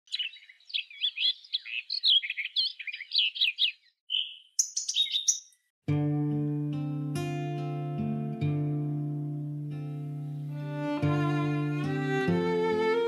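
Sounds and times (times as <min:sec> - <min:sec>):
bird warbling and whistling: 0:00.1 - 0:05.6.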